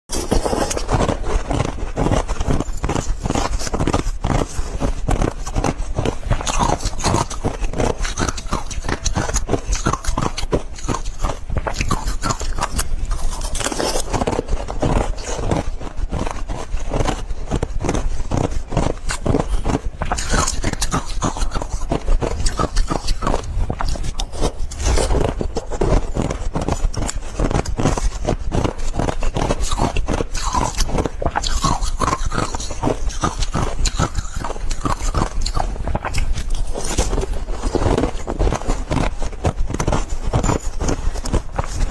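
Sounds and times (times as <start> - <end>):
ice being chewed: 17.9 - 41.9.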